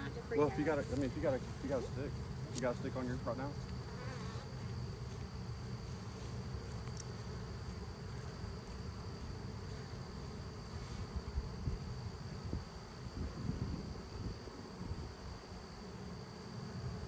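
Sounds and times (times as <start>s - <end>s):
bees buzzing: 0.0s - 13.4s.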